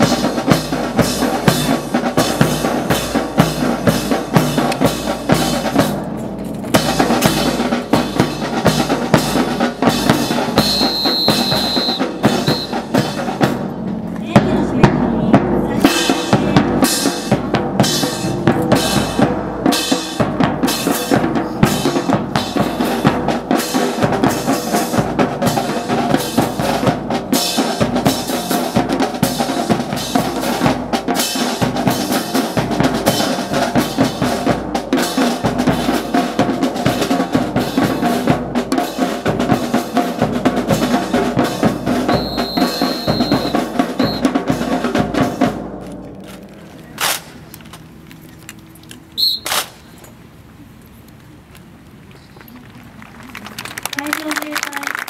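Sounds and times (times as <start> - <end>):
marching snare and bass drums: 0.0 - 47.5.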